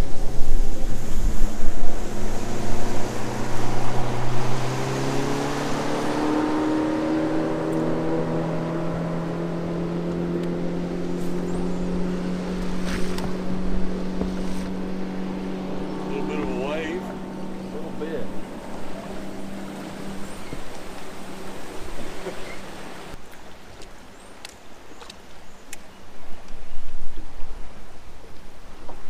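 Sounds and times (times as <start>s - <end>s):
outboard motor running: 0.0s - 23.2s
wind buffeting microphone: 0.0s - 23.2s.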